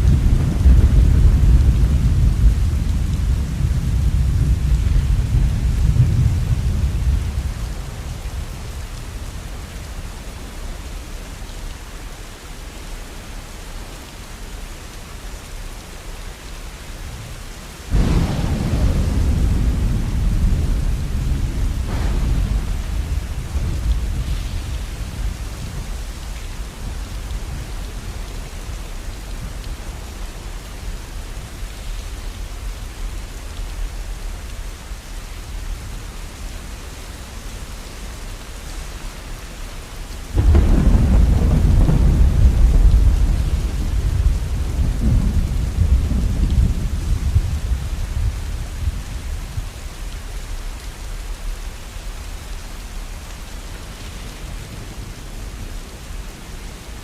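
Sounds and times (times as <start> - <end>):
thunderclap: 0.0 - 8.6, 17.9 - 28.3, 40.1 - 49.0
rain falling: 0.0 - 57.0.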